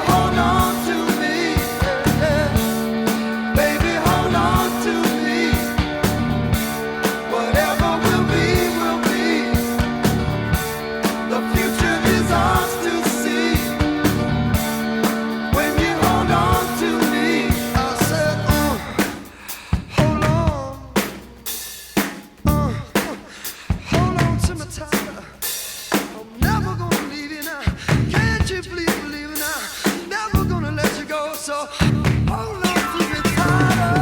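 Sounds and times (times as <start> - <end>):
drum kit: 0.0 - 34.0.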